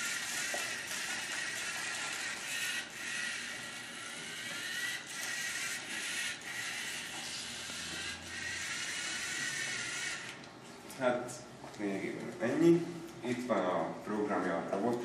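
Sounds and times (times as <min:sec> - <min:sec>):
robot motors whirring: 0:00.0 - 0:10.4.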